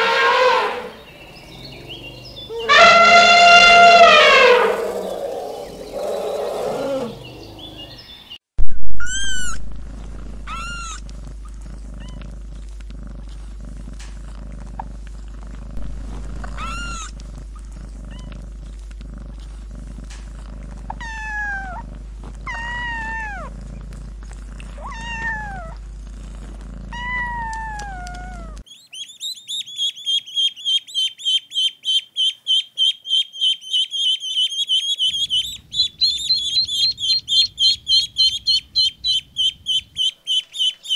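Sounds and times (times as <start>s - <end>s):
elephant calling: 0.0s - 8.0s, 33.4s - 40.9s
low steady hum: 9.2s - 28.6s, 35.0s - 40.9s
kittens mewing: 16.4s - 17.2s, 24.6s - 25.9s
ducklings peeping: 28.7s - 40.9s.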